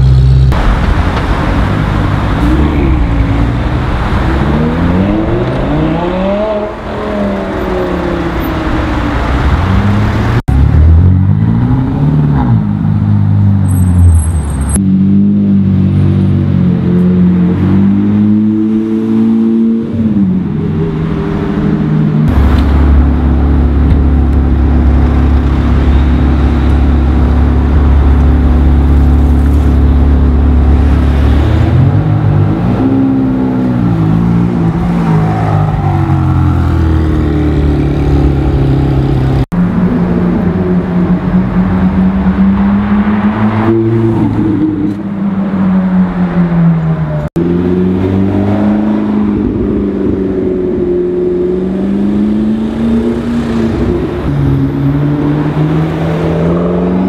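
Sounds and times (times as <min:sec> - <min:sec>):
car engine idling and revving: 0:00.0 - 0:57.0
car accelerating: 0:14.8 - 0:57.0.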